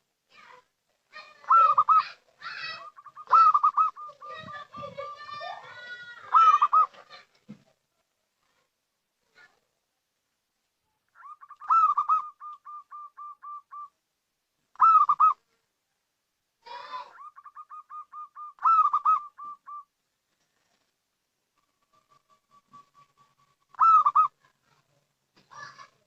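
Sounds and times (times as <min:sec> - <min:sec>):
dove cooing: 0:01.2 - 0:05.3, 0:06.2 - 0:07.2, 0:11.2 - 0:13.9, 0:14.8 - 0:15.4, 0:16.8 - 0:19.9, 0:21.6 - 0:24.6.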